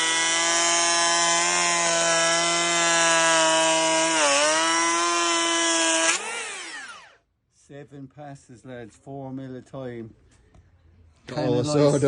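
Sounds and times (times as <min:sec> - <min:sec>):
electric planer cutting wood: 0:00.0 - 0:07.2.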